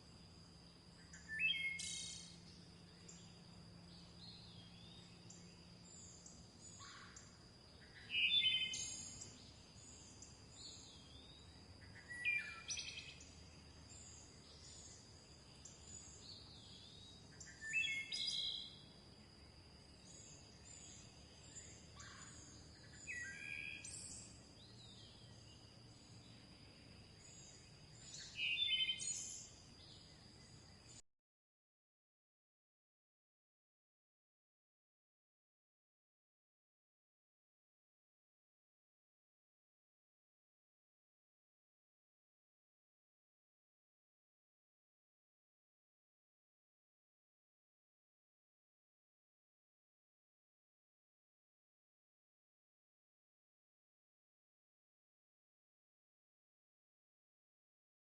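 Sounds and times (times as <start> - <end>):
faint high bird chirps: 0.0 - 31.0.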